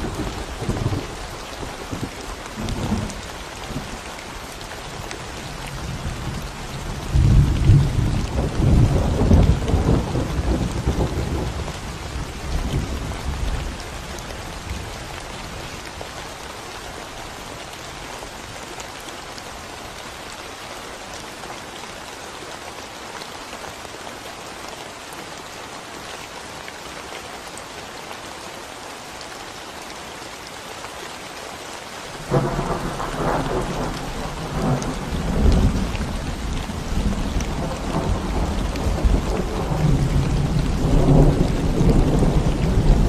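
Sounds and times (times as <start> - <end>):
rain on concrete road: 0.0 - 43.0
low rumble of thunder: 5.8 - 13.8, 32.2 - 43.0.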